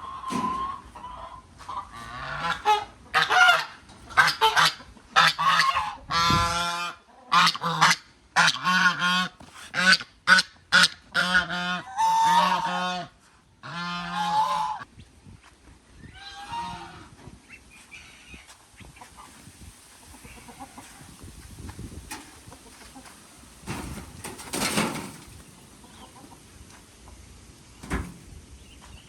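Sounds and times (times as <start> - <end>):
waterfowl calling: 1.2 - 14.9.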